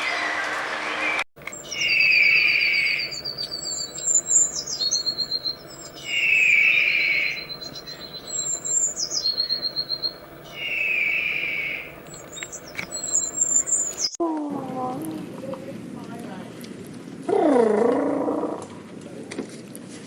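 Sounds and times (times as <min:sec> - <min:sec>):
bird song with trills: 0:01.4 - 0:14.2.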